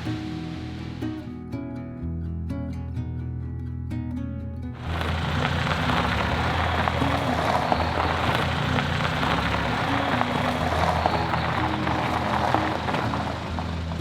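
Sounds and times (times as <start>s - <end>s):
heavy rain: 0.0s - 1.3s, 4.8s - 14.0s
soft guitar music: 0.0s - 14.0s.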